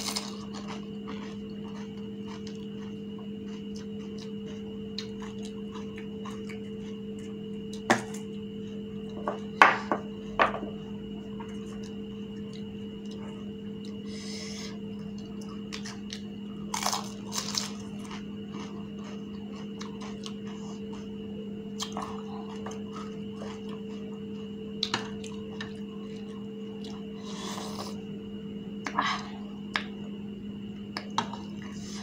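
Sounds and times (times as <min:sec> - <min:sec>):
crisp shells crunching when chewed: 0:00.0 - 0:08.3, 0:15.0 - 0:21.1
steady hum: 0:00.0 - 0:32.0.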